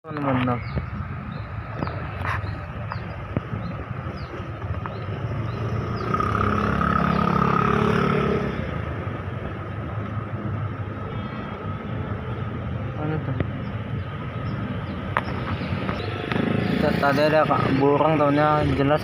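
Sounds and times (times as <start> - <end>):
steady background noise: 0.0 - 19.0
vehicle engine passing by: 5.4 - 8.9.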